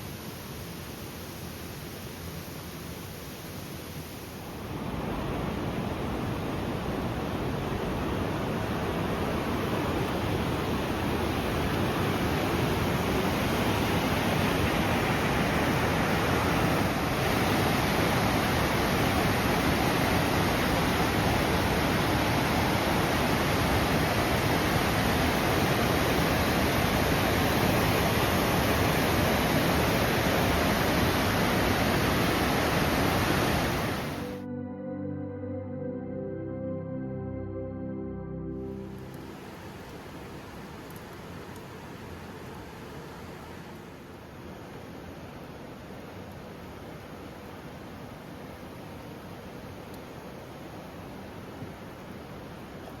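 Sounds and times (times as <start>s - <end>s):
river rushing over stones: 0.0s - 34.4s, 38.8s - 53.0s.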